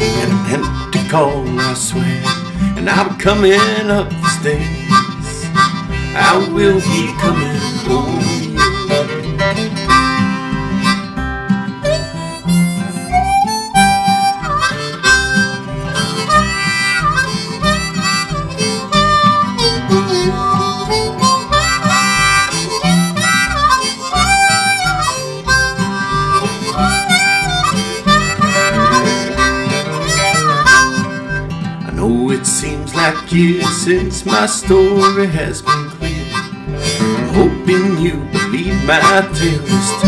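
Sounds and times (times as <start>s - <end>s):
harmonica solo: 0.0s - 40.0s
strummed acoustic guitar: 0.0s - 40.0s.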